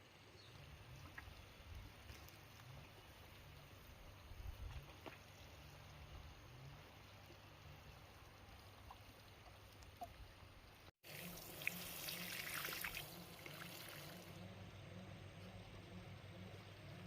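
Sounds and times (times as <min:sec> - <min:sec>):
water pouring and splashing: 0:11.0 - 0:14.4.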